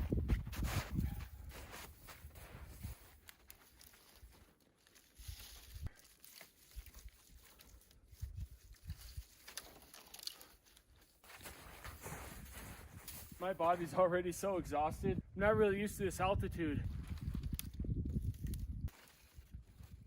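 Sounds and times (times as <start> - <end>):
footsteps crunching in snow: 0.0 - 14.0.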